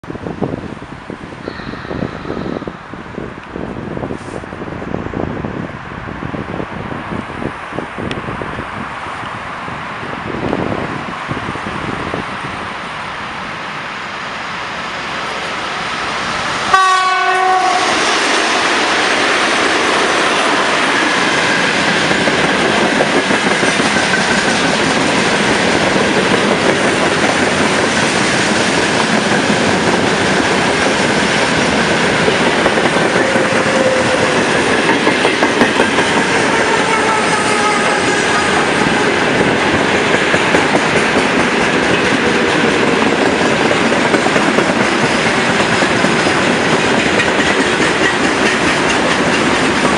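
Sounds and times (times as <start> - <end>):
train wheels rumbling: 0.1 - 49.9
locomotive horn blast: 16.7 - 18.8, 33.2 - 34.6, 36.2 - 39.4
wheels clattering over rail joints: 39.3 - 49.9.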